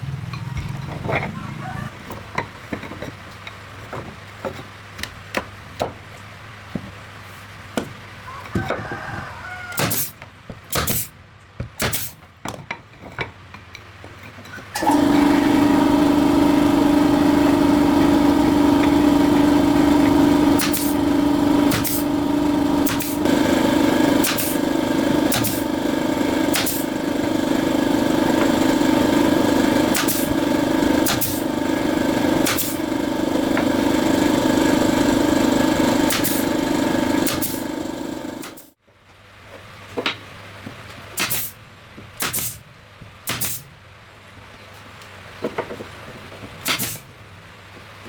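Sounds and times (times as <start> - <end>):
engine running: 0.0 - 1.9, 14.8 - 38.8.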